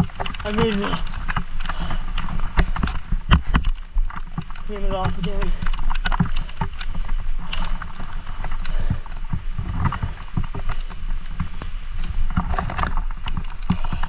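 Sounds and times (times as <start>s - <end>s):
bike knocks and rattles: 0.0s - 14.0s
bike rolling low rumble: 0.0s - 14.0s
wind buffeting microphone: 0.0s - 14.0s.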